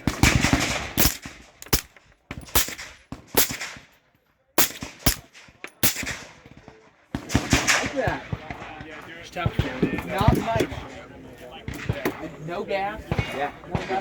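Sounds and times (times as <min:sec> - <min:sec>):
gunshots with echo: 0:00.0 - 0:03.9, 0:04.6 - 0:10.9.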